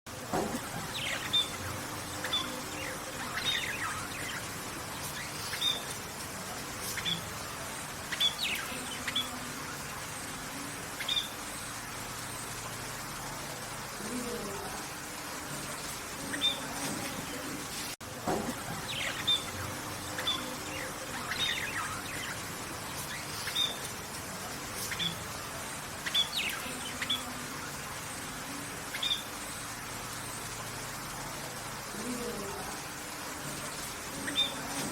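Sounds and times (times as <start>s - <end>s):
steady background hiss: 0.1s - 34.9s
bird chirping: 0.4s - 6.1s, 6.8s - 7.4s, 8.0s - 11.8s, 16.2s - 17.4s, 18.7s - 23.9s, 24.8s - 25.2s, 26.0s - 27.8s, 34.1s - 34.9s.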